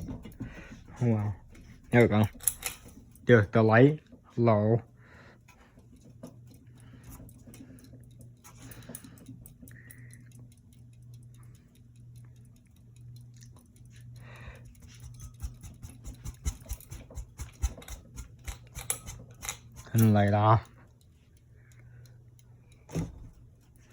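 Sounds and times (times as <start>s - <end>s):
ceiling fan motor hum: 0.0s - 23.9s
light ticks and clicks: 5.5s - 23.9s.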